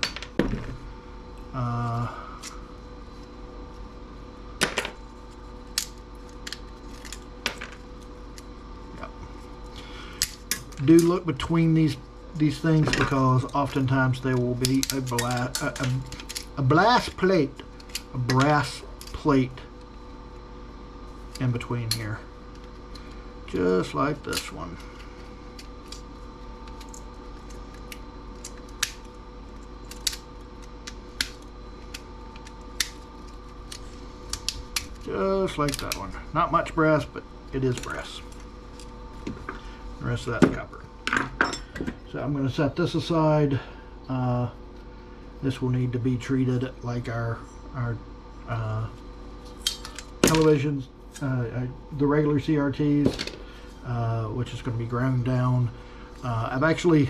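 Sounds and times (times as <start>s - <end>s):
faint steady hum: 0.0s - 57.0s
sharp clicks of small parts: 29.8s - 35.1s, 49.6s - 50.4s.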